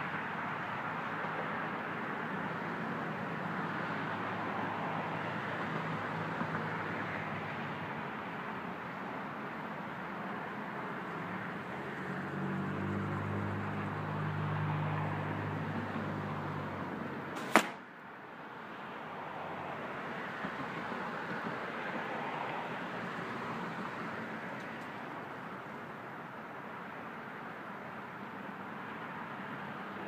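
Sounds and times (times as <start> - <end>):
outdoor background noise: 0.0 - 30.0
bow shot crack: 17.4 - 18.0.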